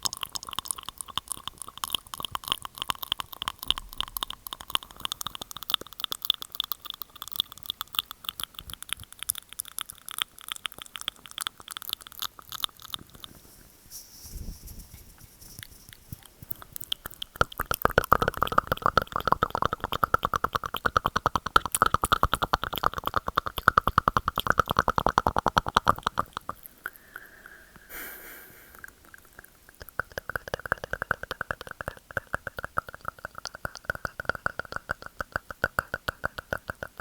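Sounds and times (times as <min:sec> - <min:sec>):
wet mouth clicks: 0:00.0 - 0:13.4, 0:15.6 - 0:37.0
short hiss: 0:27.9 - 0:28.8.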